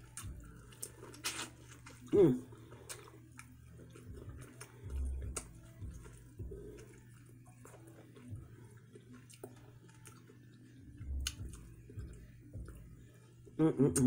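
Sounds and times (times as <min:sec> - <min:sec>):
chewing and biting corn: 0:00.0 - 0:12.8
soft low thumps: 0:11.0 - 0:13.0.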